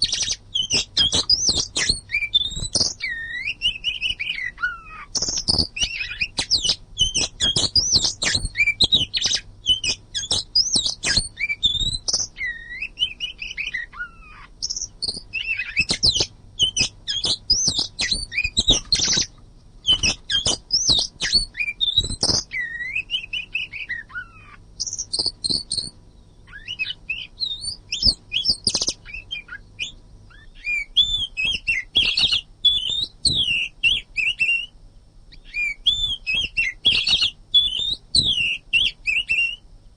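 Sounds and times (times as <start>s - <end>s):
bird singing whistled notes: 0.0s - 39.7s.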